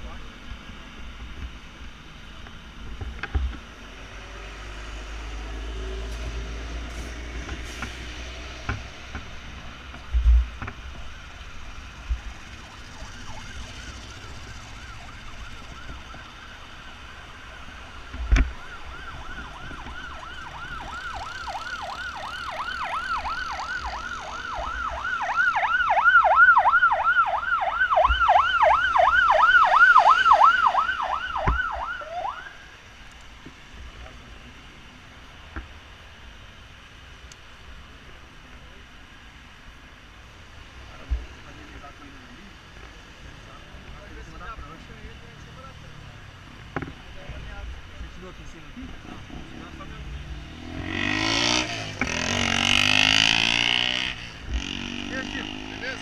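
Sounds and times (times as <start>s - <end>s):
street traffic noise: 0.0s - 56.0s
emergency siren yelping: 11.8s - 32.7s.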